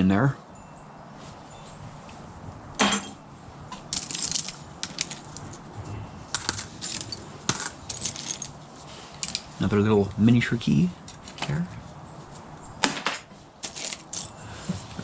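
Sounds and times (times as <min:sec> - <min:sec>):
metal junk clinking and rattling: 0:02.8 - 0:09.6, 0:12.8 - 0:15.0.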